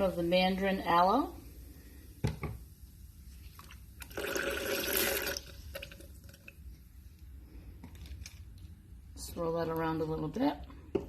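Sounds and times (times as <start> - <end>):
liquid poured into a cup: 3.3 - 6.9.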